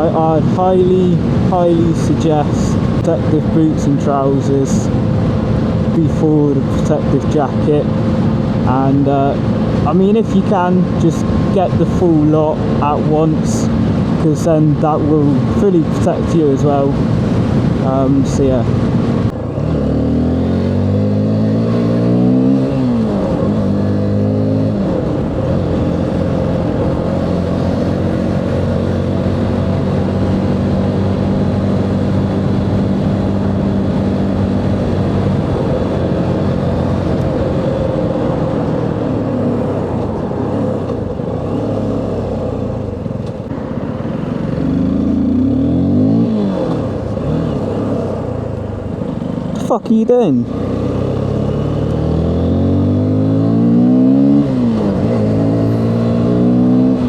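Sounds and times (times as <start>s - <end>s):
motorcycle engine accelerating: 16.6s - 57.0s.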